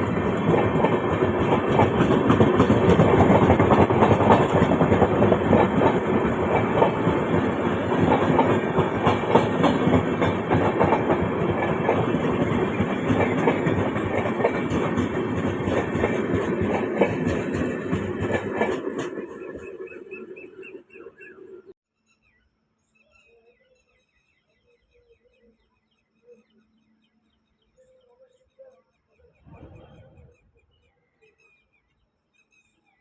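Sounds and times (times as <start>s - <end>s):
train wheels clattering over rails: 0.0s - 20.5s.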